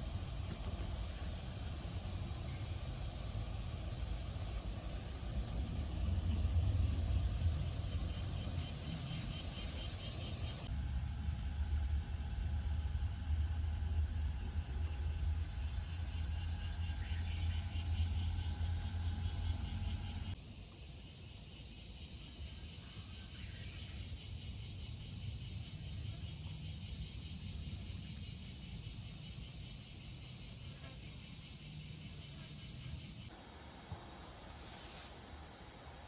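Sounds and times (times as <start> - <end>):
low vehicle rumble: 0.0 - 20.4
fast-pulsing insect chirr: 1.2 - 33.3.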